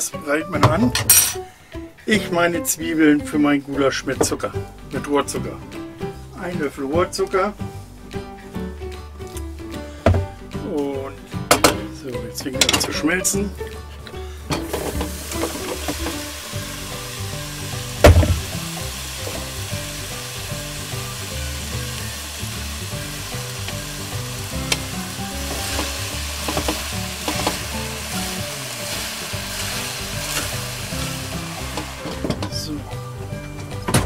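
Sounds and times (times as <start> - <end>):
onions sizzling in a pot: 14.5 - 33.2.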